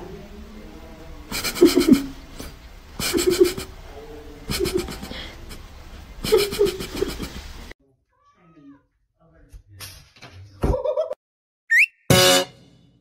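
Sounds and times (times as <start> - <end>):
cat making raspy laugh-like bursts: 1.3 - 3.7, 4.5 - 7.4.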